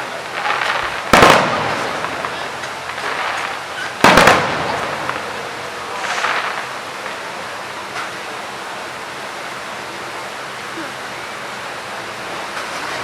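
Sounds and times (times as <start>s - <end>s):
faint firework crackles: 0.0s - 13.0s
firework shell bursting: 0.3s - 6.7s.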